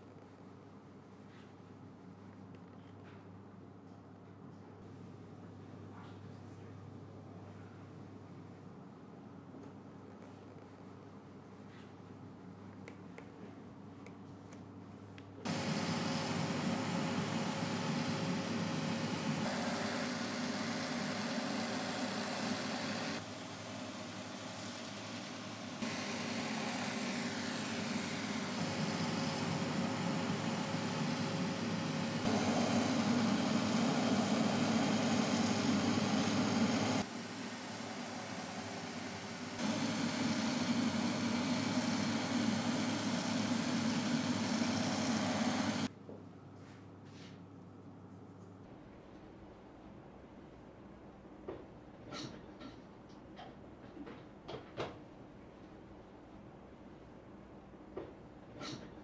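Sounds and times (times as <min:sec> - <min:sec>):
machine motor humming: 0:15.5 - 0:45.9.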